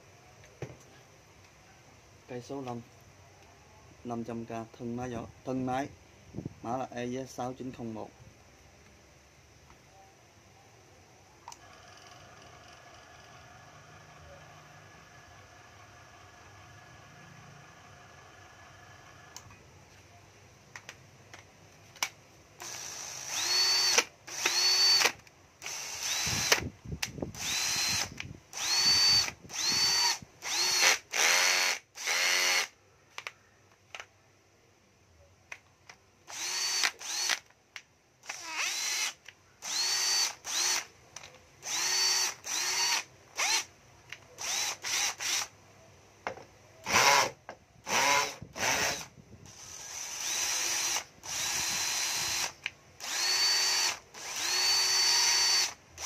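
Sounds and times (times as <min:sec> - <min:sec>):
cordless drill motor whining: 0:11.5 - 0:19.5, 0:22.6 - 0:32.7, 0:36.3 - 0:37.5, 0:38.2 - 0:40.9, 0:41.6 - 0:45.5, 0:46.8 - 0:56.0.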